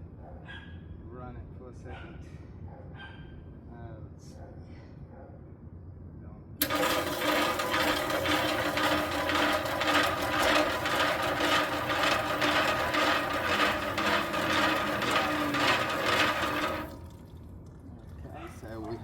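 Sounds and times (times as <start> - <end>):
mixer drum clatter: 6.6 - 17.3
concrete mixer motor hum: 6.6 - 19.0.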